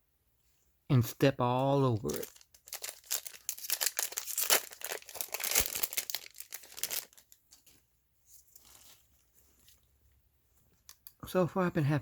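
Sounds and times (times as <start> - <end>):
foil wrapper crinkling: 1.9 - 7.6.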